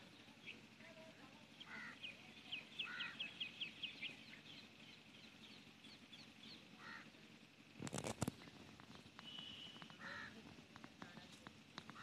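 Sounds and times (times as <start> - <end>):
birds chirping: 0.0 - 12.0
short lower bird calls: 1.6 - 7.1, 9.1 - 10.4.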